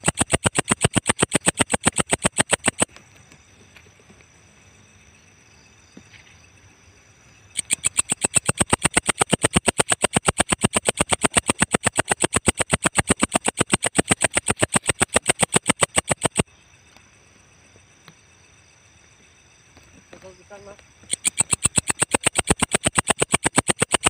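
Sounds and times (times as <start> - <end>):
katydid ticking chirps: 0.0 - 2.9, 7.5 - 17.1, 20.2 - 24.0.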